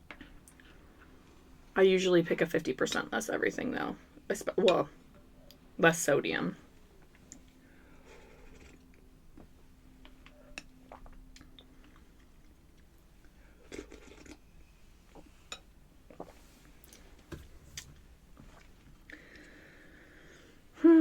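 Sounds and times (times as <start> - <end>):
person chewing crunchy food: 8.2 - 9.1, 13.6 - 14.5.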